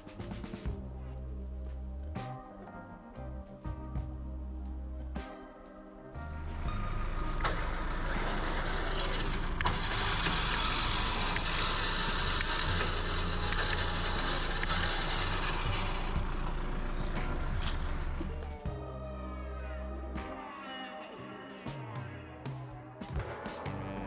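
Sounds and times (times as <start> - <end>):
faint background music: 0.0 - 24.0
engine running: 6.4 - 18.8.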